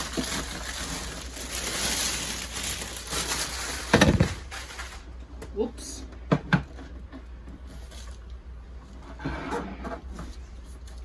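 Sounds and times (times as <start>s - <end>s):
packaging rustling and crinkling: 0.0s - 5.1s.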